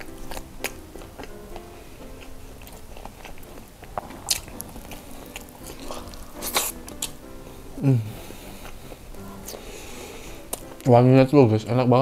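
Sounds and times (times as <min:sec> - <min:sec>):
wet chewing mouth clicks: 0:00.0 - 0:07.4, 0:10.4 - 0:10.9
soft melody: 0:00.0 - 0:12.0.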